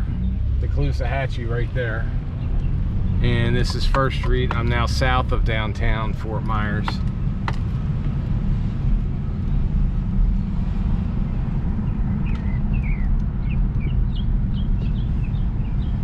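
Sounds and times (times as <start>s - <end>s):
car rumbling on road: 0.0s - 16.0s
bird chirping: 11.8s - 16.0s.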